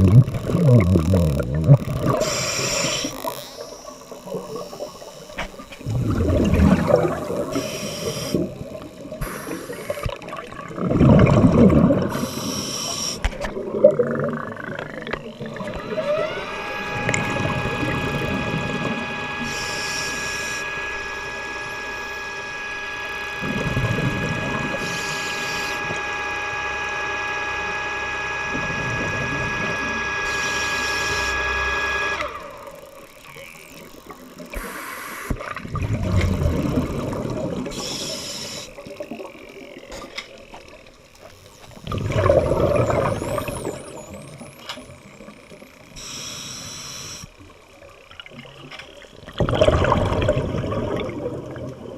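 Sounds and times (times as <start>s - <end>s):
exhale bubbles rushing: 0.0s - 3.2s, 5.8s - 15.8s, 35.4s - 39.3s, 41.8s - 44.1s, 49.3s - 51.9s
mechanical whine: 0.0s - 49.4s
diver breathing through regulator: 2.1s - 3.2s, 7.4s - 8.5s, 9.2s - 10.1s, 12.1s - 13.4s, 37.7s - 38.8s, 46.0s - 47.3s.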